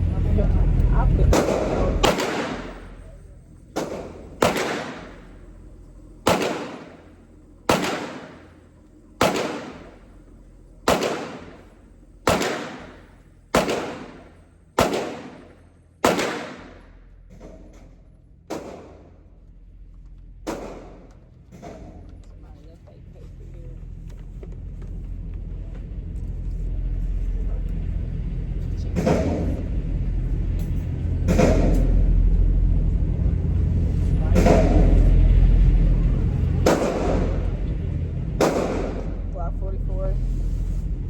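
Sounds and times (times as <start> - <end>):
pistol shots with echo: 1.3 - 3.1, 3.7 - 5.5, 6.2 - 8.6, 9.2 - 10.2, 10.8 - 17.0, 18.5 - 19.2, 20.4 - 21.1, 36.6 - 37.6, 38.4 - 39.2.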